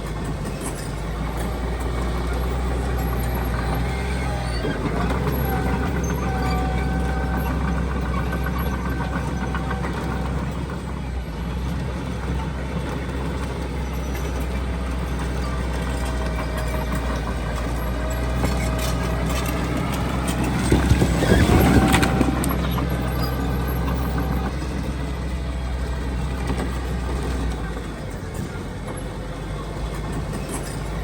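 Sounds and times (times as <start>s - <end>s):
clanking: 0.0s - 31.0s
heavy diesel machinery engine hum: 0.0s - 31.0s
engine whine rising: 16.3s - 25.1s.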